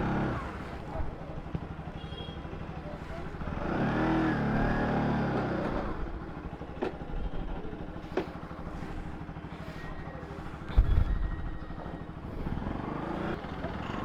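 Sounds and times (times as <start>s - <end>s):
motorcycle engine idling: 4.4s - 14.0s.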